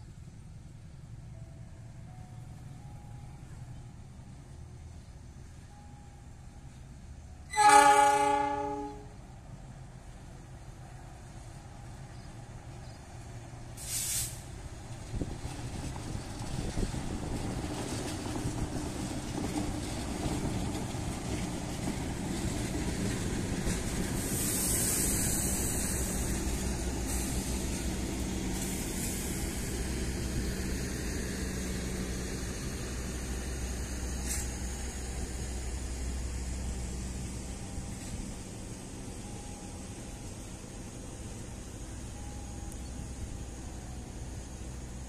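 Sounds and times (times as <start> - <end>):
train wheels rumbling on rail: 0.0 - 45.0
air hissing: 13.8 - 14.5, 24.2 - 29.7.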